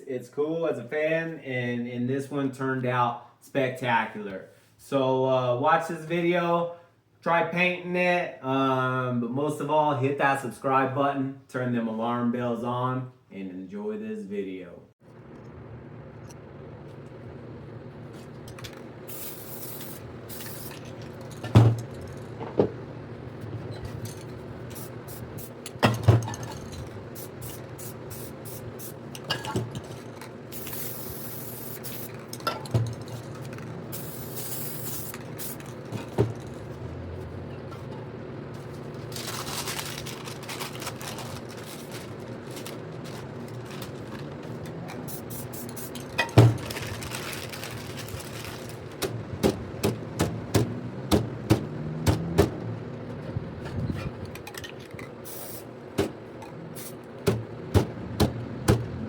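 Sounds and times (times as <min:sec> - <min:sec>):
spray paint can hissing: 0:19.1 - 0:21.3, 0:24.7 - 0:25.6, 0:27.1 - 0:29.0, 0:30.5 - 0:32.3, 0:33.9 - 0:35.8, 0:45.0 - 0:46.1, 0:55.2 - 0:55.7.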